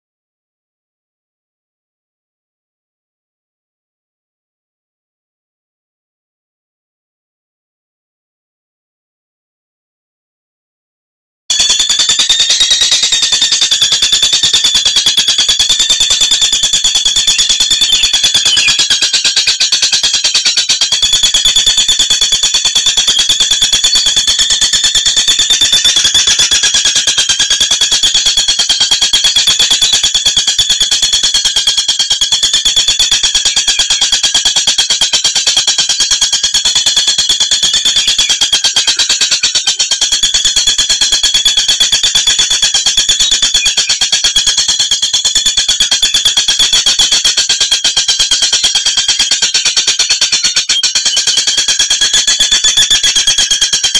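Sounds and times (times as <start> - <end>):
bird high-pitched trill: 11.5 - 53.9.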